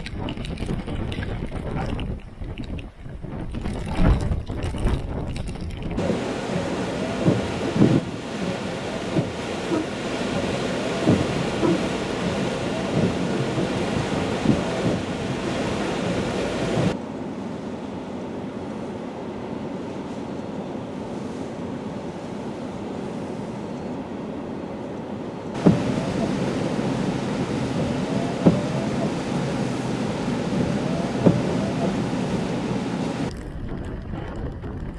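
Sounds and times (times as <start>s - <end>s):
rushing surf or rain: 0.0s - 2.8s, 3.4s - 17.0s, 25.5s - 34.9s
strong wind with whistling gusts: 0.0s - 17.0s, 25.5s - 34.9s.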